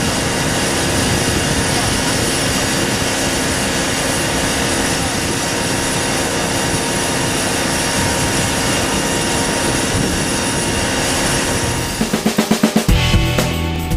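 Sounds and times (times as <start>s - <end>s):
aircraft engine drone: 0.0s - 13.9s
pulsing music beat: 12.0s - 13.9s.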